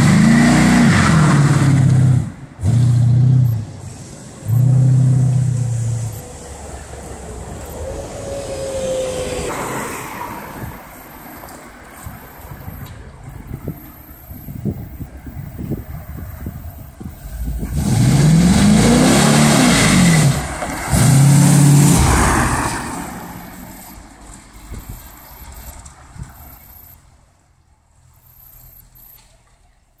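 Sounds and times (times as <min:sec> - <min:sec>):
car engine accelerating past: 0:17.4 - 0:23.6.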